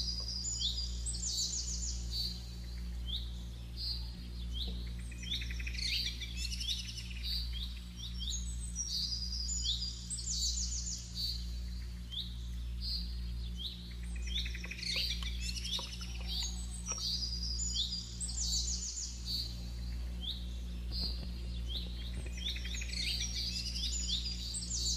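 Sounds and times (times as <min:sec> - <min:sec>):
songbirds chirping and trilling: 0:00.0 - 0:24.9
steady low hum: 0:00.0 - 0:24.9.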